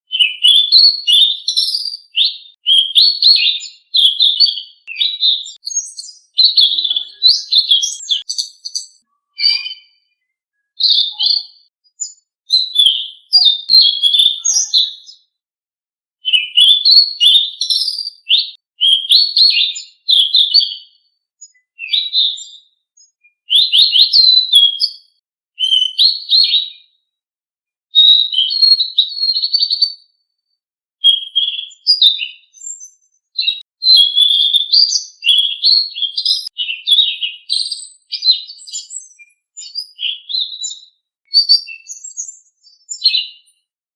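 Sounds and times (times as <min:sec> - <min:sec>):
songbird chirps and trills: 0:00.1 - 0:15.3, 0:16.3 - 0:26.6.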